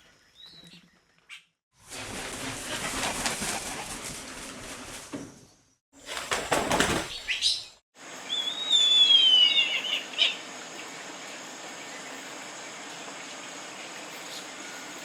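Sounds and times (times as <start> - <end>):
bird wings flapping: 1.8 - 7.7
bird whistling gliding notes: 7.1 - 10.4.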